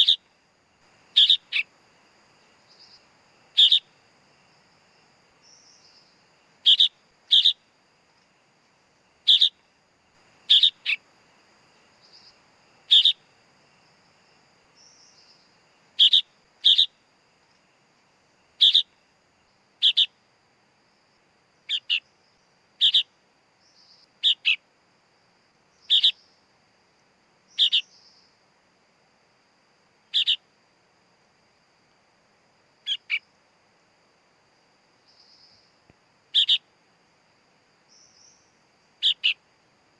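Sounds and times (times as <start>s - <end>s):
bird chick calling: 1.2s - 1.7s, 3.6s - 3.9s, 9.3s - 9.6s, 10.5s - 11.0s, 21.7s - 22.0s, 25.9s - 26.2s, 27.6s - 27.9s, 30.2s - 30.4s, 32.9s - 33.2s, 36.4s - 36.6s.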